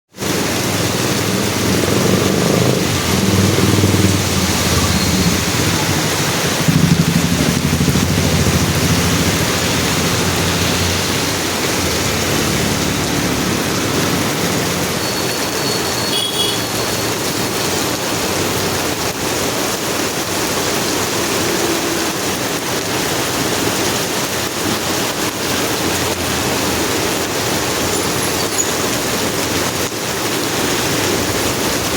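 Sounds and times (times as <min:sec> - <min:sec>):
train wheels rushing on rail: 0:01.2 - 0:15.2.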